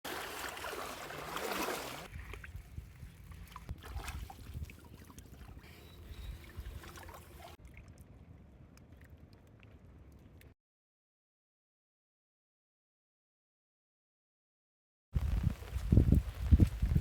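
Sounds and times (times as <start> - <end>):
hissing water splash: 0.0 - 2.1
water trickling: 0.1 - 10.5.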